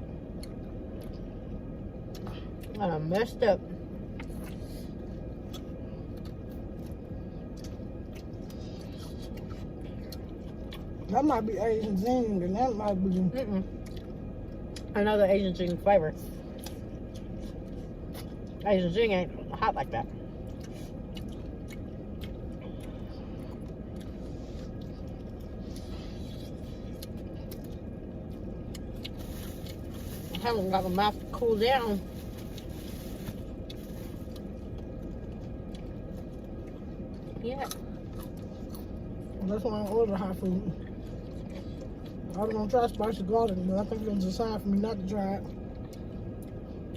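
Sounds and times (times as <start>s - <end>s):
chewing and handling food: 0.0s - 46.9s
low background hum: 0.0s - 46.9s
low background rumble: 0.0s - 46.9s.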